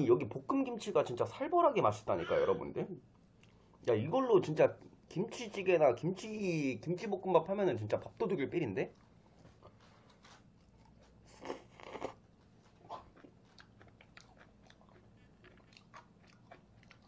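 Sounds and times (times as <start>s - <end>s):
chewing and crunching: 8.8s - 17.0s.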